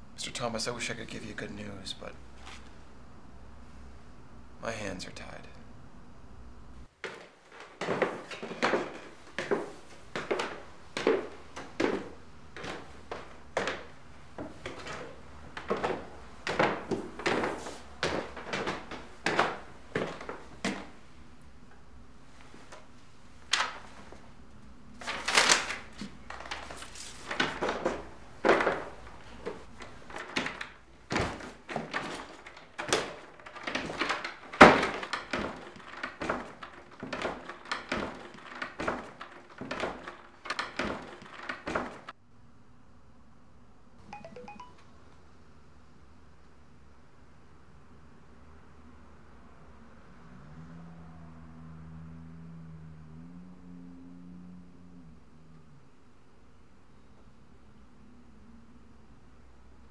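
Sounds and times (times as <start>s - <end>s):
wooden thuds and knocks: 7.0s - 21.0s, 26.0s - 42.2s
footsteps on wooden stairs: 7.0s - 21.1s, 26.0s - 42.1s.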